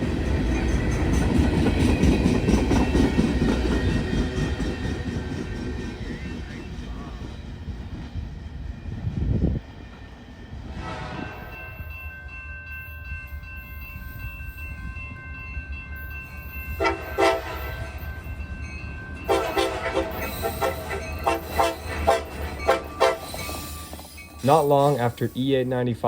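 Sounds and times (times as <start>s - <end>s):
train clattering: 0.0s - 12.4s, 16.0s - 26.0s
freight train rumbling by: 0.0s - 26.0s
train horn chord: 16.8s - 18.0s, 19.3s - 23.5s.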